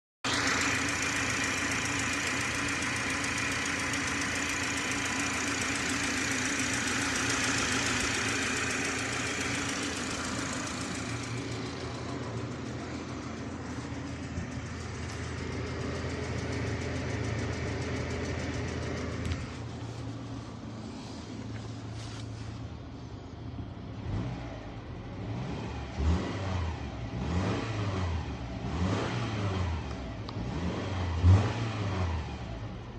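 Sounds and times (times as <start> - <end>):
car engine idling: 0.2 - 25.4.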